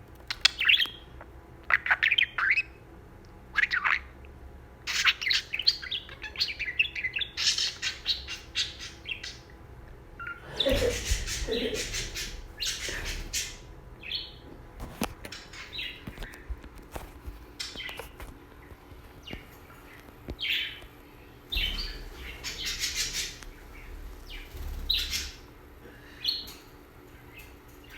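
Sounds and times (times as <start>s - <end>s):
budgerigar chirping and chattering: 10.2s - 14.4s, 21.5s - 25.4s
soft rushing noise: 21.5s - 26.0s.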